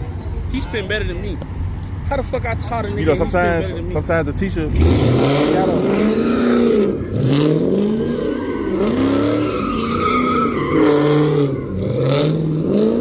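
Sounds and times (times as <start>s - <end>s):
car engine revving: 4.0s - 13.0s
tyres squealing and skidding: 4.7s - 13.0s.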